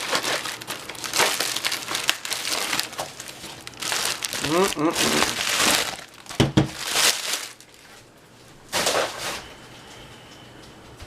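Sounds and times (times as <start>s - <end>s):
packaging knock: 0.0s - 7.6s
wrapping rustling: 0.0s - 8.1s.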